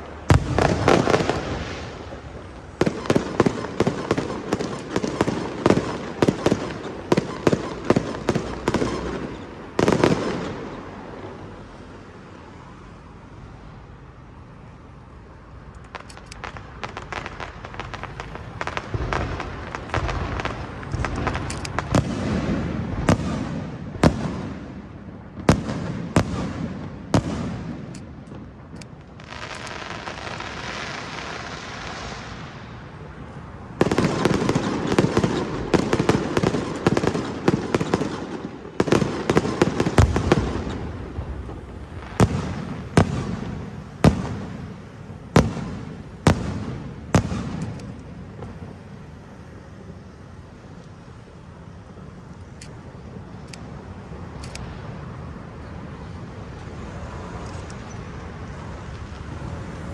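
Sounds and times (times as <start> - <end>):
loud firework bangs: 0.0 - 11.5, 16.0 - 33.1, 33.7 - 50.4
firecrackers crackling: 0.0 - 12.4, 15.5 - 59.9
steady hiss: 13.3 - 59.9.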